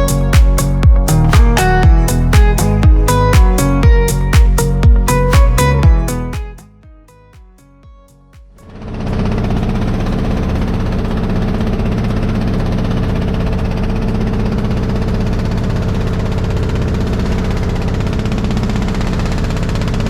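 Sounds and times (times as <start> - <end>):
engine running steadily: 8.6 - 20.0.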